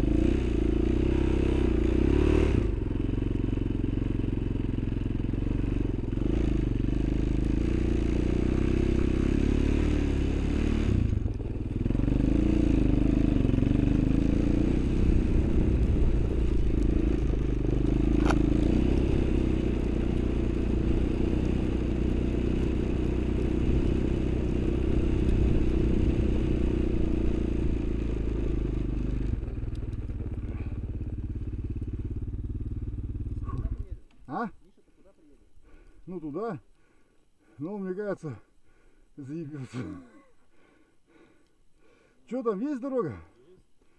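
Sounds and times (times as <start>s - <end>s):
off-road vehicle engine running: 0.0s - 34.5s.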